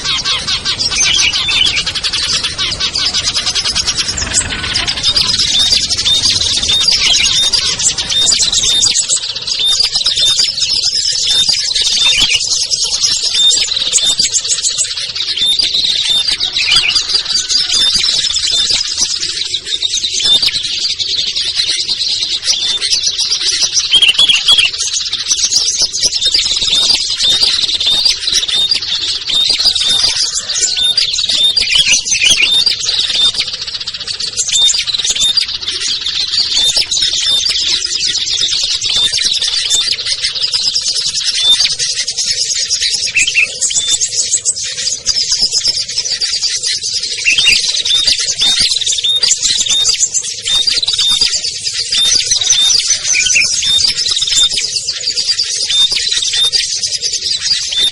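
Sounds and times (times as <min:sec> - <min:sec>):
songbirds chirping and trilling: 0:00.0 - 0:57.9.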